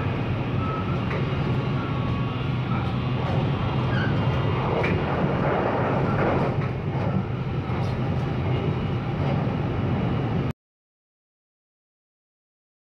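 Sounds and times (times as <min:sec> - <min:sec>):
wheel-on-rail noise: 0:00.0 - 0:10.3
train interior low hum: 0:00.0 - 0:10.5.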